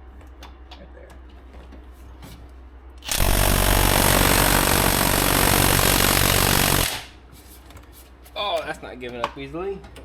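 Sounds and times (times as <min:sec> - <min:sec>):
impact wrench hammering: 0:03.1 - 0:07.2.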